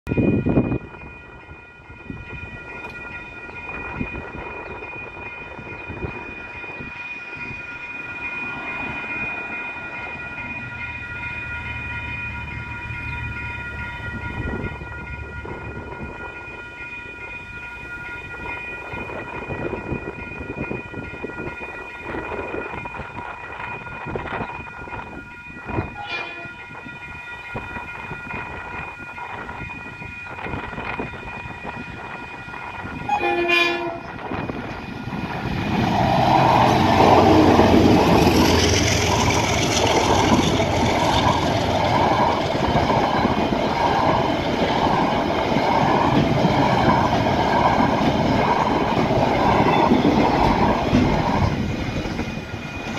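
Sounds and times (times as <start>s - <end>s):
level crossing bells ringing: 0.1s - 35.4s
locomotive engines and wheels: 0.1s - 52.9s
locomotive horn blast: 26.0s - 26.6s, 33.1s - 34.3s.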